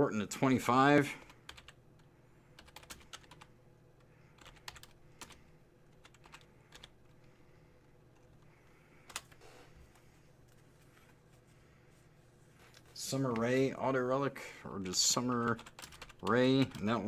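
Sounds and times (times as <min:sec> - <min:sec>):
keyboard typing: 0:01.2 - 0:07.3, 0:08.1 - 0:10.6, 0:15.2 - 0:17.0.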